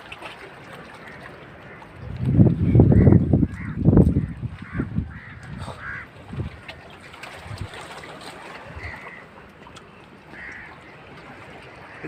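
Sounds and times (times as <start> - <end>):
sea: 0.0 - 12.0
wind gusting on microphone: 2.0 - 7.9.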